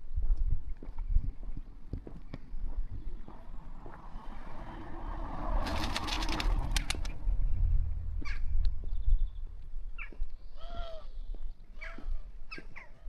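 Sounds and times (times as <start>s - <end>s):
car passing by: 2.2s - 10.3s.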